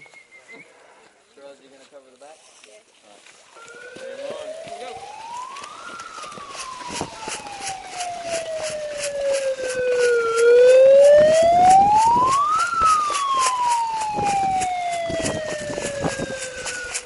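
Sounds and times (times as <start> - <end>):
siren wailing: 3.6 - 17.0.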